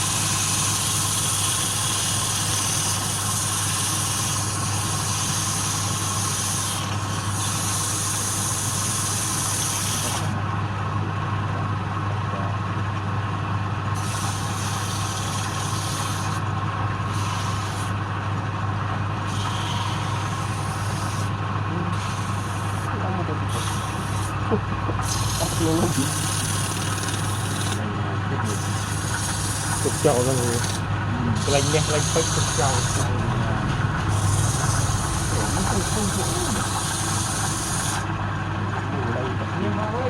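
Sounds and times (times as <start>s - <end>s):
high hiss from wood turning: 0.0s - 10.4s, 14.0s - 16.4s, 17.1s - 18.0s, 19.3s - 21.4s, 22.0s - 24.4s, 25.0s - 27.8s, 28.4s - 33.4s, 34.0s - 38.2s
lathe motor hum: 0.0s - 12.8s, 13.6s - 40.0s.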